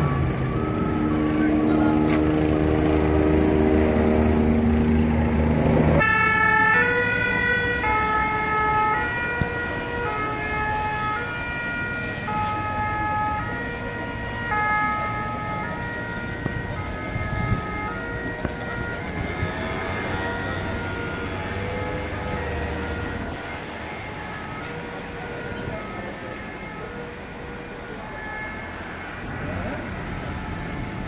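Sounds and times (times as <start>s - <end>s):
street traffic: 0.0s - 31.0s
two-tone emergency siren: 0.0s - 31.0s.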